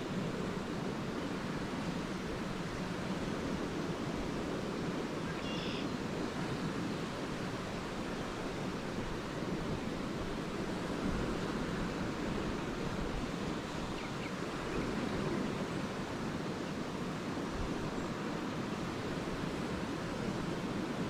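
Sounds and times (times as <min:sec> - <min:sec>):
waves washing onto beach: 0:00.0 - 0:21.0.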